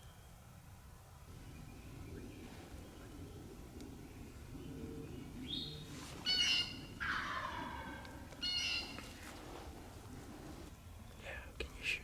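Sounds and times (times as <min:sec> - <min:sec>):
wild bird calls: 0:01.3 - 0:09.4.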